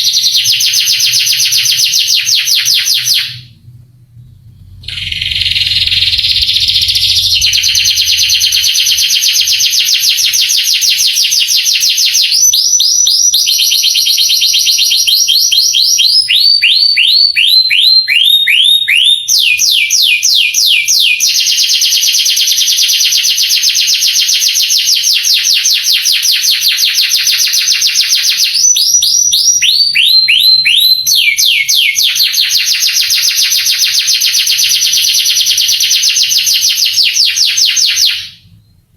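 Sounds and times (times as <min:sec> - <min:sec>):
canary singing trills: 0:00.0 - 0:13.5.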